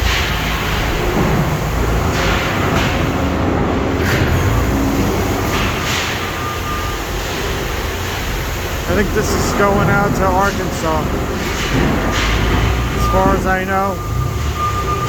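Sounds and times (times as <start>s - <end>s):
industrial machinery rumble: 0.0s - 15.0s.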